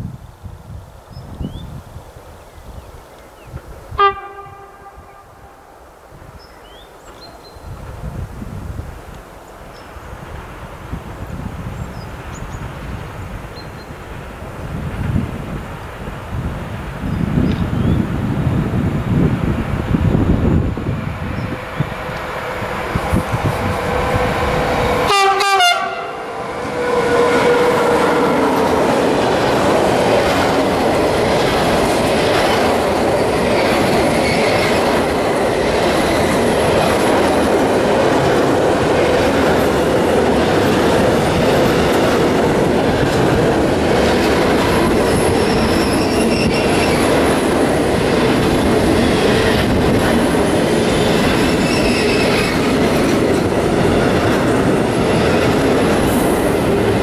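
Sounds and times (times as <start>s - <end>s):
locomotive horn: 3.9s - 5.8s, 24.9s - 28.7s
freight train wheels clattering: 26.6s - 57.0s.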